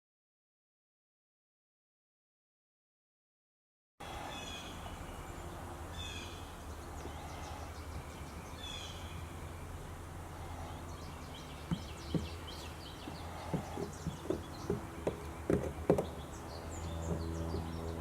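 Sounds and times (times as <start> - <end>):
birds chirping: 4.0 - 18.0
steady low hum: 4.0 - 18.0.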